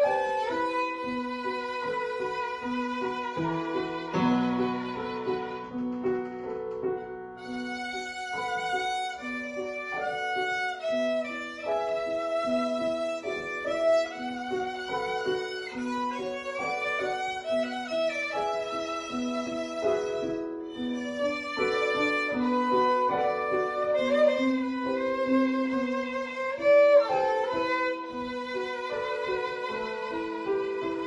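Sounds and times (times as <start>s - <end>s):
violin playing classical piece: 0.0s - 31.0s.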